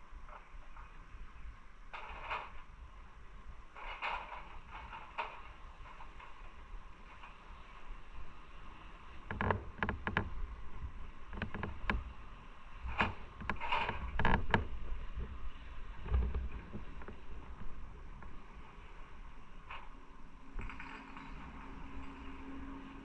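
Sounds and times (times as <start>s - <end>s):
knocks and rattles: 3.8s - 7.4s, 12.9s - 15.4s
motorcycle road and wind rumble: 9.3s - 23.0s.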